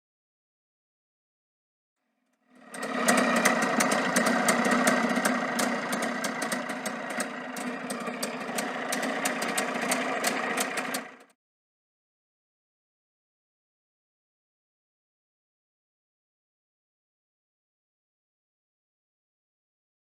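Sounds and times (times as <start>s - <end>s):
motorcycle engine idling: 2.5s - 11.3s
sharp irregular ticks: 2.6s - 11.3s.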